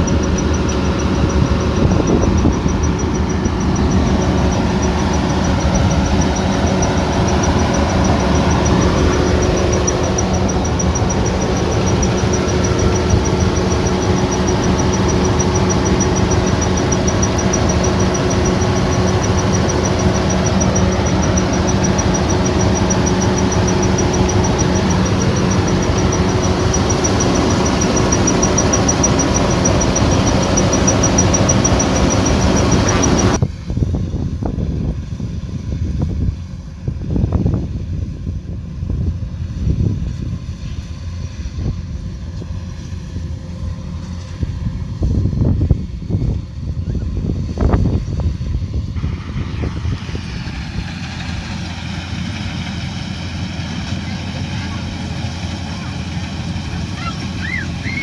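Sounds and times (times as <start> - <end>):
thin high whine: 0.0 - 33.4
threshing machinery rattle: 0.0 - 33.4, 48.9 - 58.0
combine harvester engine drone: 0.0 - 58.0.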